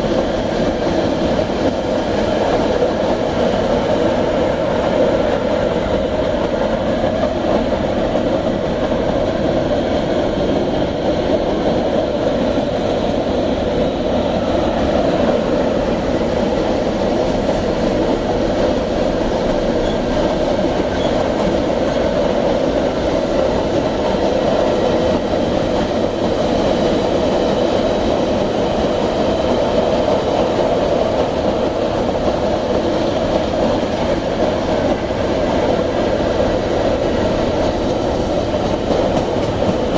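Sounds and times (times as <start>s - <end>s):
clickety-clack of wheels: 0.0s - 39.9s
train wheels rumbling on rails: 0.0s - 39.9s.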